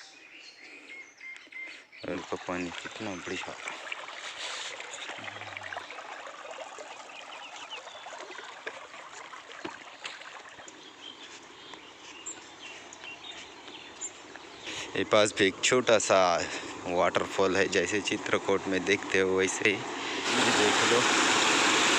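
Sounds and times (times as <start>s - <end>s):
faint bird chirps: 0.0s - 3.4s.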